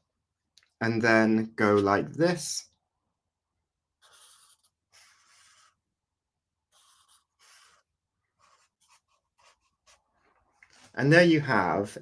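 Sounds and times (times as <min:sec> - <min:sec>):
pen scratching on paper: 0:04.0 - 0:05.9, 0:06.6 - 0:11.0.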